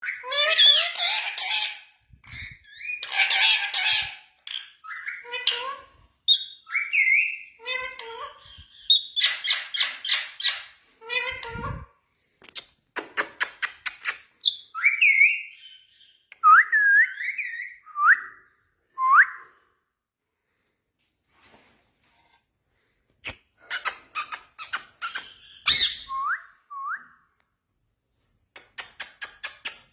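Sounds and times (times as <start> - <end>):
parakeet squawking and chattering: 0.0 - 11.9, 23.6 - 26.1.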